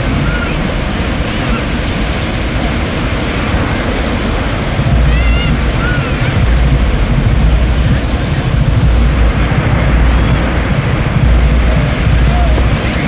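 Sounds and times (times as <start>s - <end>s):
surf washing: 0.0s - 13.0s
wind buffeting microphone: 0.0s - 13.0s.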